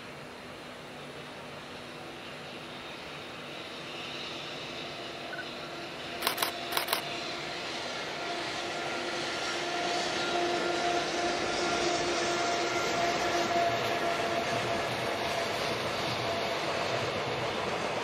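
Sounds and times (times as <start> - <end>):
freight train rumbling over bridge: 0.0 - 18.0
sharp clicks: 6.2 - 7.0.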